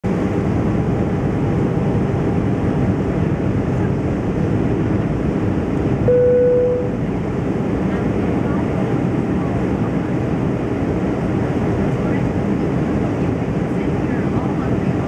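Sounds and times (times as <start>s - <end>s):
aircraft cabin rumble: 0.1s - 15.0s
electronic tone: 6.1s - 7.0s.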